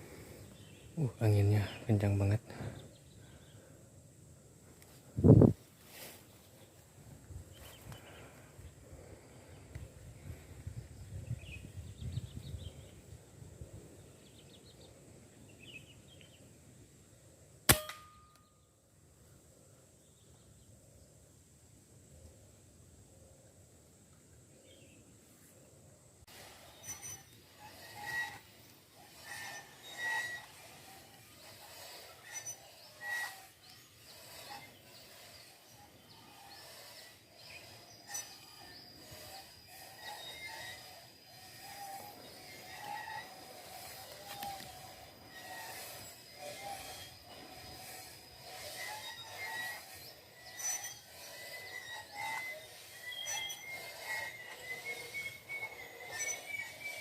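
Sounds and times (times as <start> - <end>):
small birds chirping: 0.0 - 4.0, 4.7 - 17.4, 26.3 - 57.0
steady background hiss: 0.0 - 57.0
wind rumbling on microphone: 5.0 - 5.6, 7.1 - 14.5.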